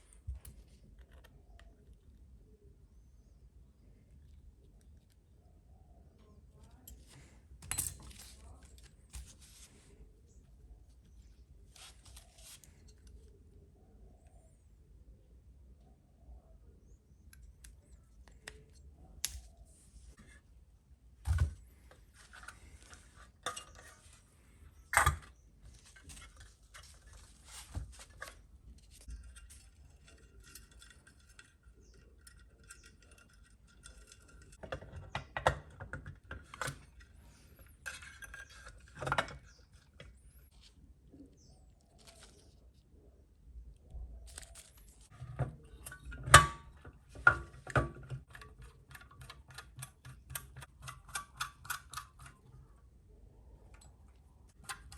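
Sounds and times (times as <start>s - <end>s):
metal parts clinking on work surface: 6.9s - 8.5s.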